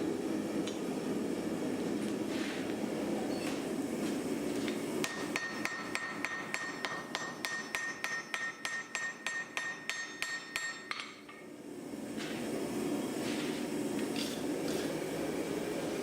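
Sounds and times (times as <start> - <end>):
hammer striking anvil: 5.0 - 11.4.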